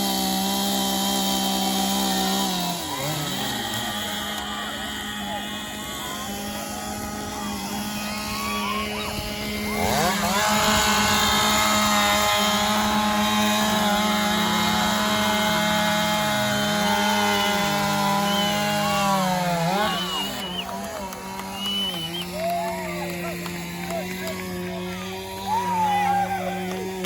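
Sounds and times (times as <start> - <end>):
chainsaw revving: 0.0 - 27.0
low steady engine tone: 0.0 - 27.0.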